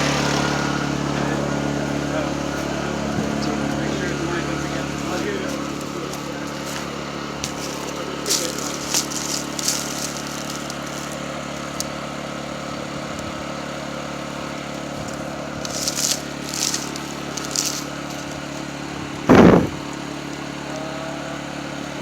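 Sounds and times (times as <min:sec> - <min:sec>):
mechanical hum: 0:00.0 - 0:22.0
loud thump: 0:19.3 - 0:19.9
short scraping sounds: 0:19.3 - 0:19.9.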